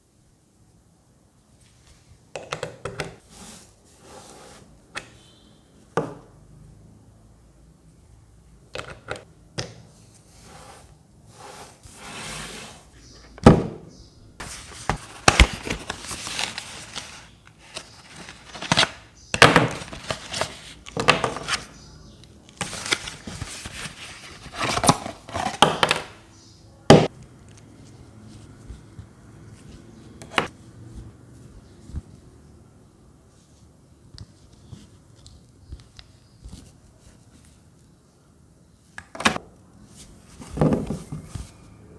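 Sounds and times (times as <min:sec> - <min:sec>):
packaging rustling: 0:14.4 - 0:21.7, 0:22.6 - 0:26.0.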